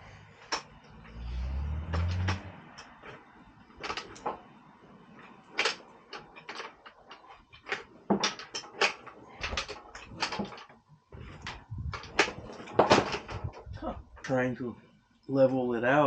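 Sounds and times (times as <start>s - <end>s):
tools clicking and knocking: 0.4s - 4.5s, 5.2s - 13.8s.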